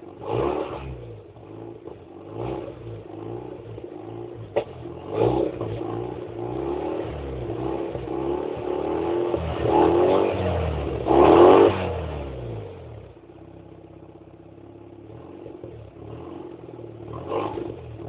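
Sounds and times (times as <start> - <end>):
sharp exhaust pop: 4.4 - 6.0.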